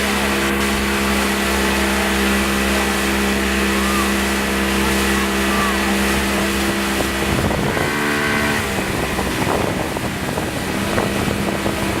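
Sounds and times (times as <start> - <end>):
boat engine running: 0.0 - 12.0
rushing water: 0.0 - 12.0
wind buffeting microphone: 5.3 - 12.0.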